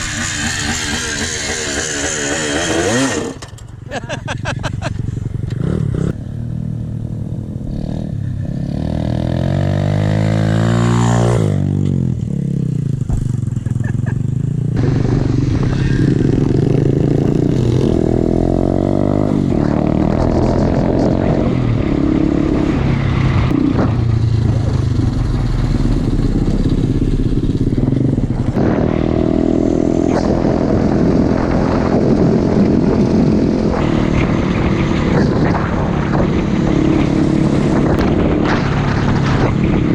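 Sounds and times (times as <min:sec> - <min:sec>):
small motorcycle engine revving: 0:00.0 - 0:03.5, 0:25.2 - 0:39.9.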